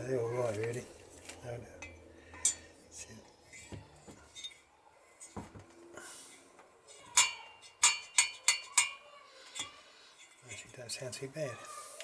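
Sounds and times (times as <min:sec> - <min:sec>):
metal valves clinking: 0:07.1 - 0:08.9.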